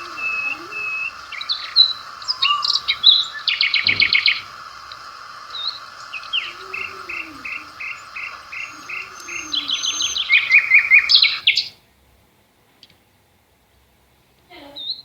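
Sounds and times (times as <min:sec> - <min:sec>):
insect drone: 0:00.0 - 0:11.6
birds singing and chirping: 0:00.0 - 0:11.7.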